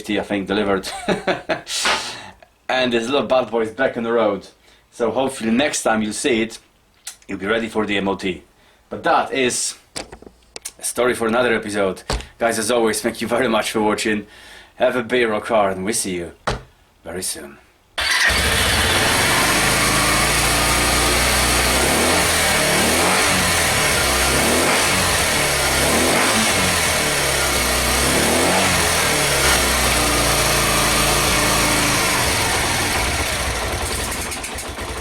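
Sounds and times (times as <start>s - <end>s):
motorcycle engine revving: 18.0s - 35.0s.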